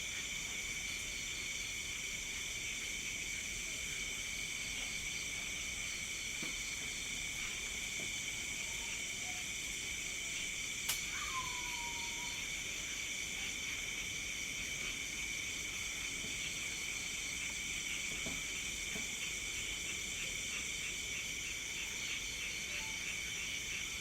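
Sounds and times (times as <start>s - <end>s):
crickets and insects trilling: 0.0s - 24.0s
sharp click: 10.9s - 11.1s.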